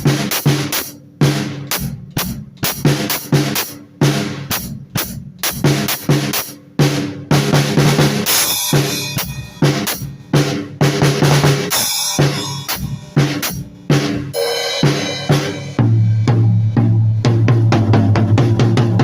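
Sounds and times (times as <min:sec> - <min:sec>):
bass drum and snare hits: 0:00.0 - 0:19.0
cymbal crashes: 0:11.6 - 0:17.4.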